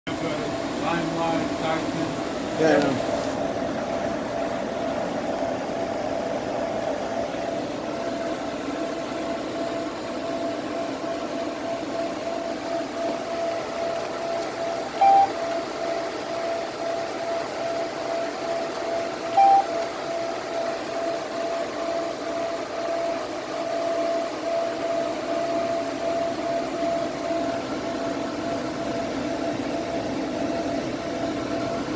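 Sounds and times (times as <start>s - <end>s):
machine humming: 0.1s - 31.9s
constant tone: 3.7s - 31.9s
short beeps: 15.0s - 15.5s, 19.3s - 19.9s.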